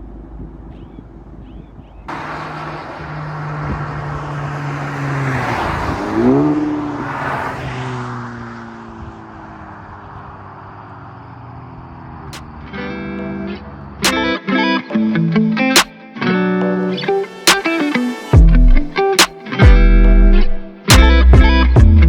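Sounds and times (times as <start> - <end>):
car engine and exhaust passing: 0.0 - 15.6.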